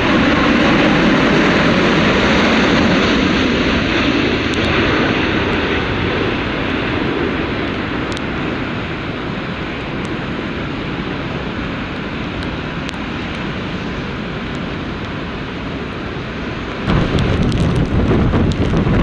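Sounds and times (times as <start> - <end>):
jet airliner engine rush: 0.0 - 19.0.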